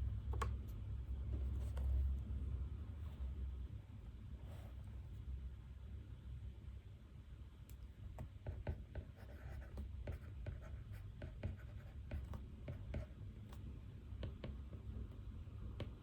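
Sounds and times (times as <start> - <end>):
low room hum: 0.0 - 16.0
pen writing on paper: 8.4 - 13.2.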